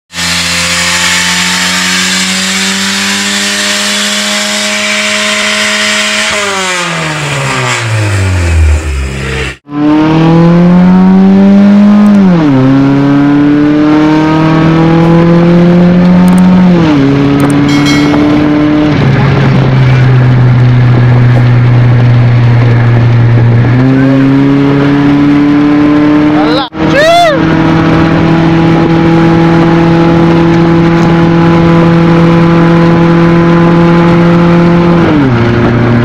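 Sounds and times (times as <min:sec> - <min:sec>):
car engine at high revs: 0:00.1 - 0:36.0
car accelerating through gears: 0:00.2 - 0:36.0.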